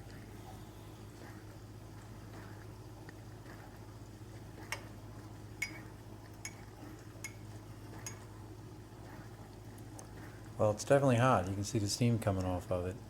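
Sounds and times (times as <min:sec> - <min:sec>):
spoon clinking against mug: 0:05.6 - 0:07.4, 0:08.0 - 0:08.3.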